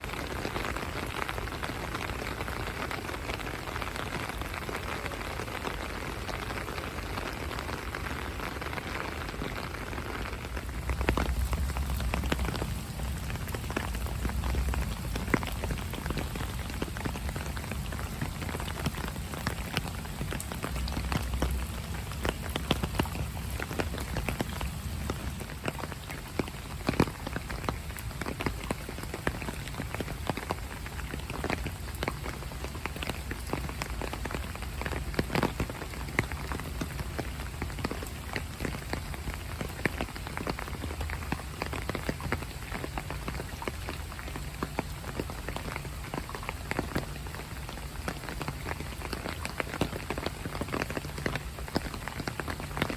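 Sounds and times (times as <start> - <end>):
rain falling: 0.0 - 52.9
low rumble: 10.4 - 16.7.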